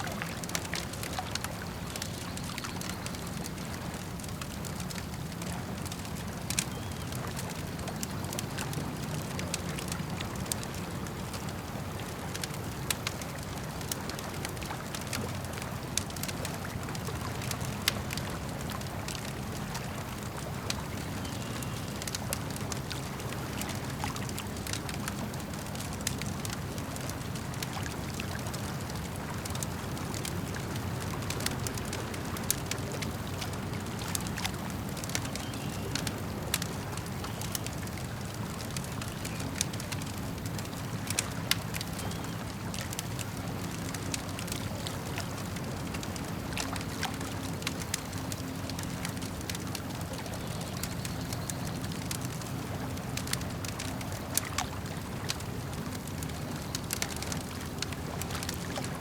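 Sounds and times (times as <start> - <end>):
lake water lapping: 0.0 - 59.0
campfire crackling and popping: 0.1 - 59.0.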